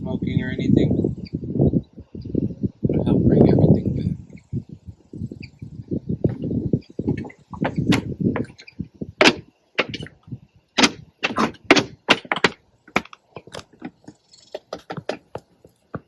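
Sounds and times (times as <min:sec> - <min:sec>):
objects clicking and knocking: 0:07.1 - 0:10.2, 0:10.8 - 0:16.0.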